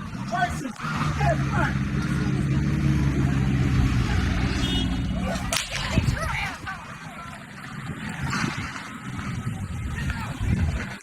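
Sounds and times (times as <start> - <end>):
engine running: 0.0 - 11.0
sharp crack: 5.2 - 6.1.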